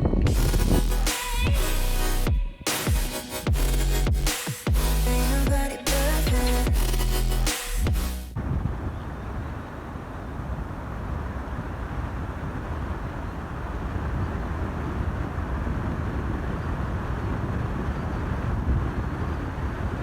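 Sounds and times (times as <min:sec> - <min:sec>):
wind buffeting microphone: 0:08.4 - 0:20.0.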